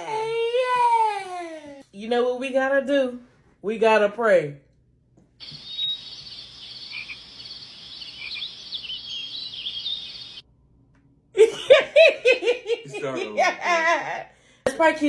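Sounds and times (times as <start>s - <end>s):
chorus of animal chirps: 5.4s - 10.4s.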